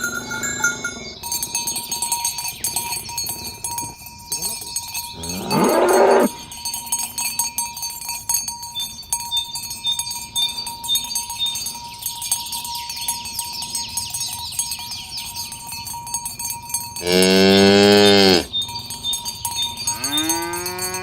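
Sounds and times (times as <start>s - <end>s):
cow mooing: 0.0s - 1.2s, 5.2s - 6.4s, 17.0s - 18.5s, 19.9s - 21.0s
cowbells clanking: 0.0s - 21.0s.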